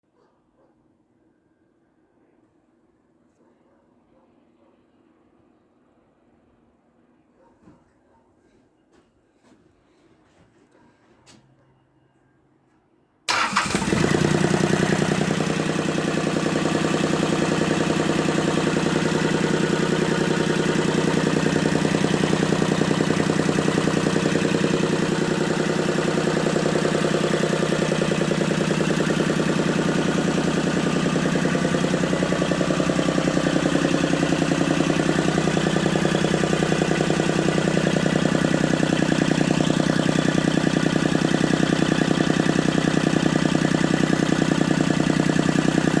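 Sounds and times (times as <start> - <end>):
diesel engine starting and running: 13.3 - 46.0.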